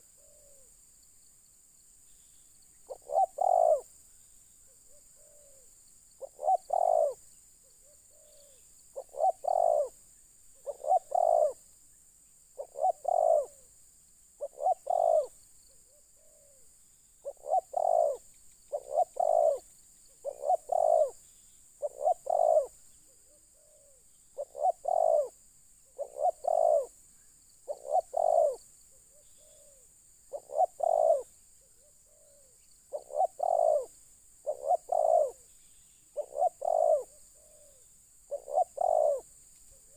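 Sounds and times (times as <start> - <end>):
dove cooing: 0.0 - 0.7, 2.9 - 3.9, 4.9 - 7.2, 7.8 - 10.0, 10.6 - 11.6, 12.6 - 13.7, 14.4 - 21.2, 21.8 - 27.0, 27.6 - 35.5, 36.2 - 39.9
faint high hiss: 0.0 - 39.9.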